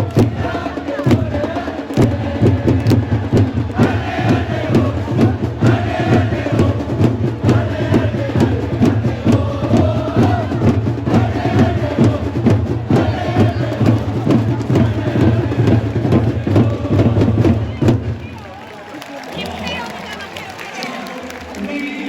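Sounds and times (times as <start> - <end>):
steady drum beat: 0.0 - 18.6
crowd chanting: 0.0 - 22.0.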